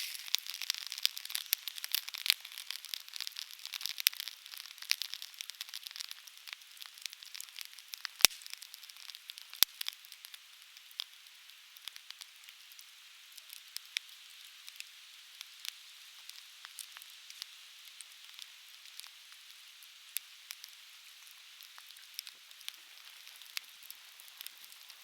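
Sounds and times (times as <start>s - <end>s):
faint steady hiss: 0.0s - 25.0s
firewood crackling and popping: 0.0s - 25.0s.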